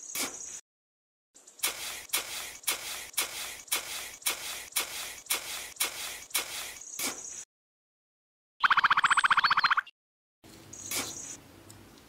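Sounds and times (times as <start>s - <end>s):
trowel scraping sand: 0.0s - 0.6s, 1.6s - 7.4s.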